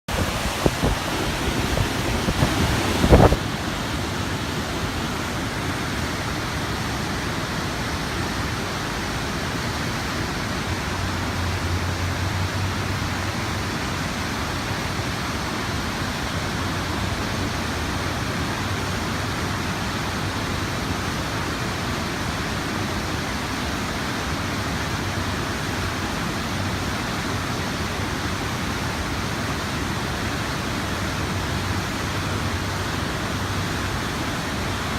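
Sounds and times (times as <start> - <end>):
river water flowing: 0.1 - 34.9.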